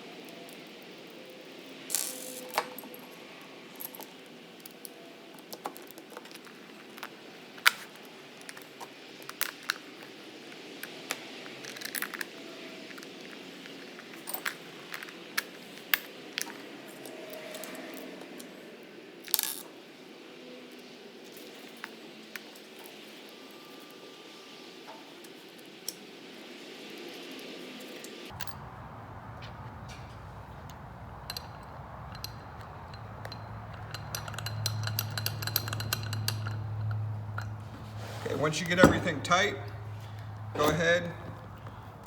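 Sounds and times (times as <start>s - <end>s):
metallic clinks of hardware: 30.6s - 39.8s.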